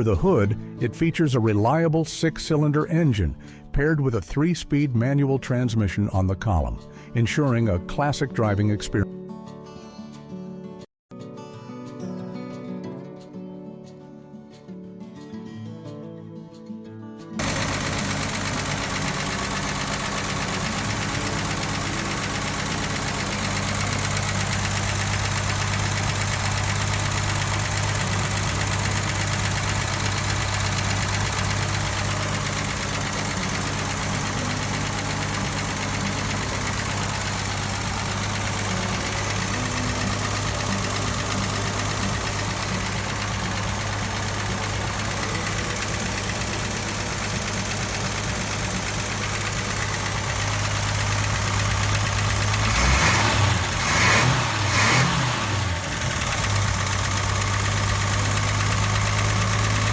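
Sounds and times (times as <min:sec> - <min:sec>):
car engine idling: 0:17.4 - 0:59.9.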